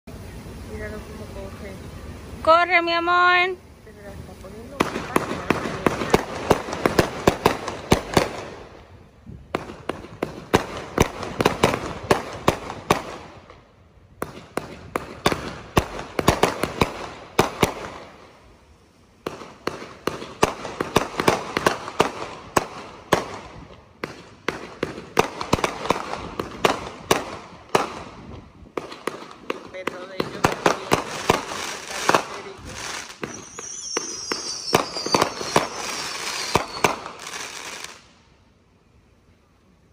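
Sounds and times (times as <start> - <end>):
fireworks launching in rapid volleys: 0.1 - 38.3
sharp aerial firework bangs: 4.6 - 8.7, 14.2 - 18.3, 19.2 - 38.0.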